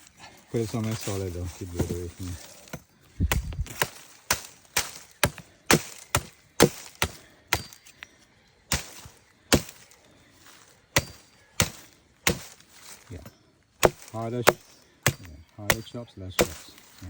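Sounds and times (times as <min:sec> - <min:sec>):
blade chopping coconut husk: 0:01.6 - 0:08.0, 0:08.7 - 0:10.0, 0:10.9 - 0:13.1, 0:13.8 - 0:17.0.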